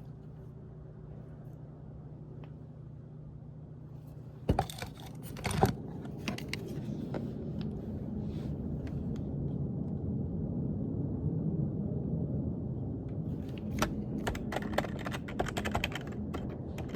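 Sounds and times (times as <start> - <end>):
low steady rumble: 0.0 - 16.9
sharp knocks and clicks: 13.6 - 16.9.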